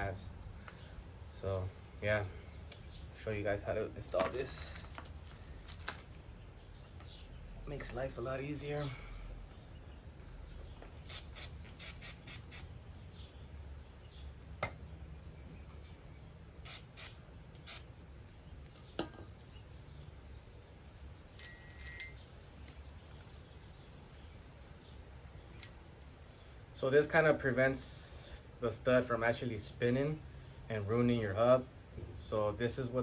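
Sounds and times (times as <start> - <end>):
metal clicks and clinks: 21.4 - 22.3, 25.6 - 25.8
ringing metallic clinks: 21.4 - 22.4, 25.6 - 25.9.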